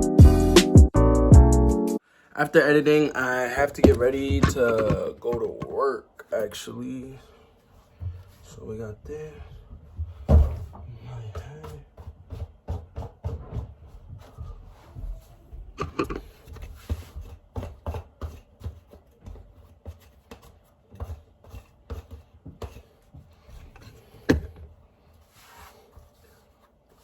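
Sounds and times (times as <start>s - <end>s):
rummaging and rubbing: 3.6s - 5.7s
light bumps and knocks: 3.6s - 6.0s, 7.9s - 24.8s.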